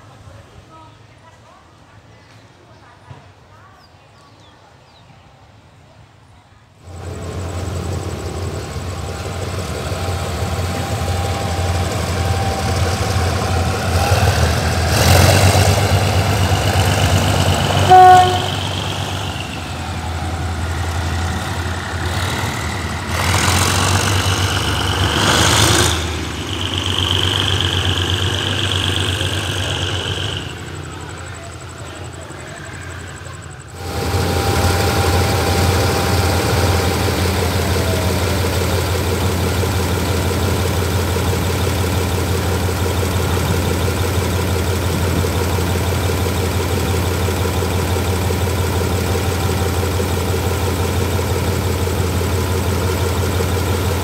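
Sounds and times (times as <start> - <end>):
train engine rumbling: 5.2 - 54.0
train horn toot: 17.6 - 19.3, 33.8 - 37.3.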